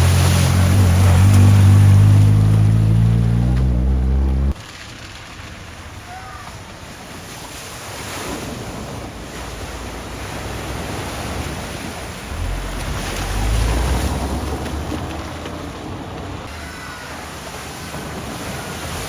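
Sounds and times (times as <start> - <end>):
low vehicle rumble: 0.0 - 6.8, 12.2 - 18.2
rushing water: 0.0 - 19.0.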